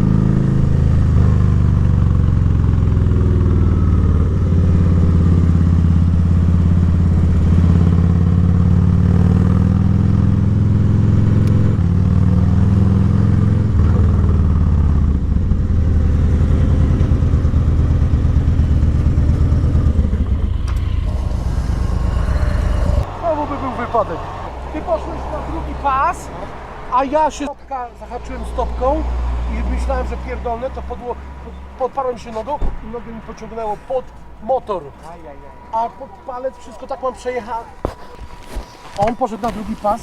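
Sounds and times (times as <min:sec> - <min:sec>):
motorcycle engine running: 0:00.0 - 0:23.1.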